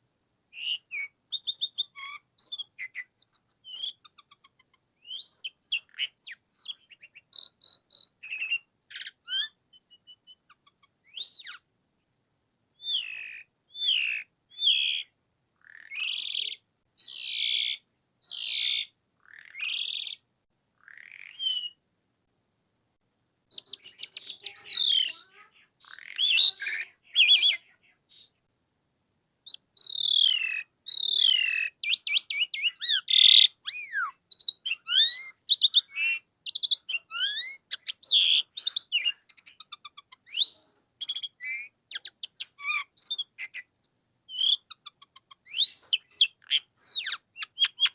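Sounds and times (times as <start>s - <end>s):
starling song of clicks and whistles: 0.0s - 11.7s, 12.7s - 21.8s, 23.5s - 28.5s, 29.4s - 47.9s
starling harsh calls: 12.8s - 20.2s, 20.8s - 21.8s, 23.5s - 28.3s, 29.5s - 43.7s.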